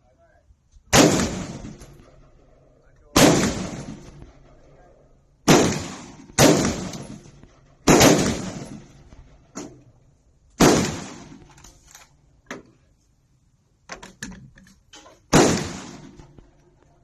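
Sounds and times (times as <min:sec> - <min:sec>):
rifle shots: 0:00.9 - 0:04.8, 0:05.4 - 0:09.7, 0:10.6 - 0:11.6, 0:15.3 - 0:16.6.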